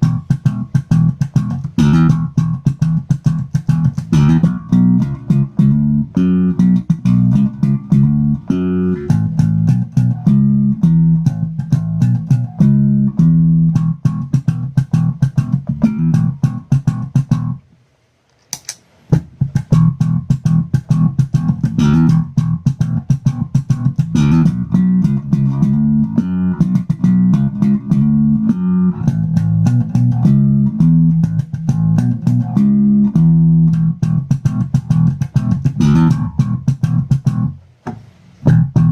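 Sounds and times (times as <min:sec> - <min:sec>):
plucked bass guitar notes: 0:00.0 - 0:17.6, 0:19.2 - 0:37.6, 0:38.4 - 0:38.9
sharp click: 0:18.3 - 0:18.9.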